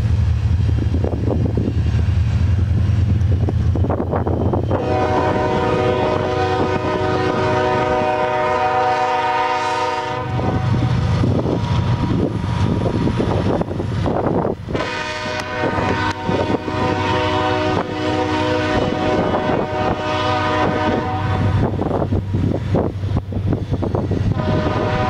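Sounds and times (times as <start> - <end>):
passing train rumble: 0.0 - 25.0
locomotive air horn: 4.7 - 10.9, 14.7 - 21.8, 24.3 - 25.0.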